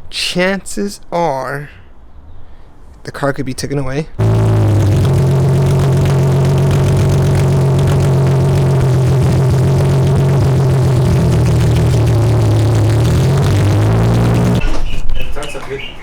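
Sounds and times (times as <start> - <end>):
car engine droning while driving: 4.2 - 14.6.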